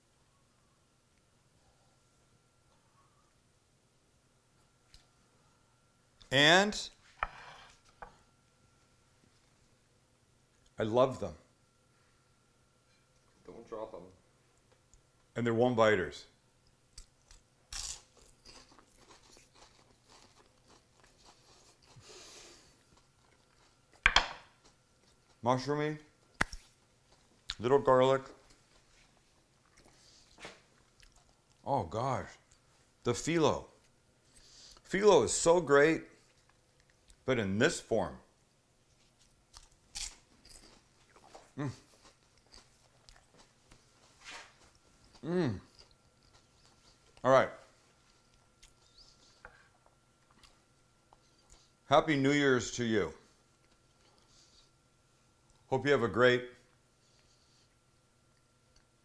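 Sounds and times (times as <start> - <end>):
crackles of chewing: 16.6 - 25.4, 28.2 - 31.7, 36.2 - 37.3, 38.8 - 51.9, 53.3 - 55.7
pastry crunching when chewed: 17.0 - 24.0, 39.0 - 43.9
person humming mm: 45.2 - 45.7.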